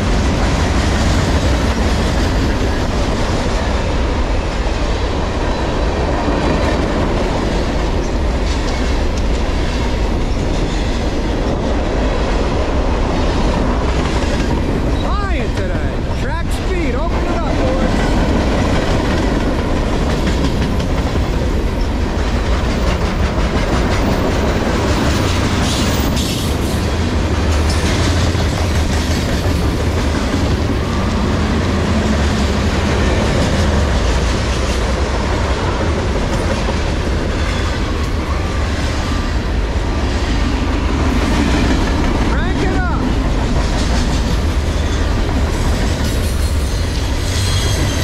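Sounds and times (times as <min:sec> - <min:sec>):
freight train wheels rumbling on rail: 0:00.0 - 0:48.0
wheels clacking over rail joints: 0:17.0 - 0:48.0.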